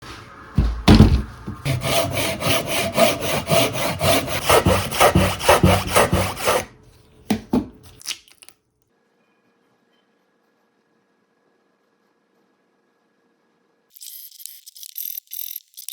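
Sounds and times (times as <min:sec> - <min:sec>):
loud knocks: 0:00.6 - 0:02.0
saw cutting through wood: 0:01.6 - 0:06.8.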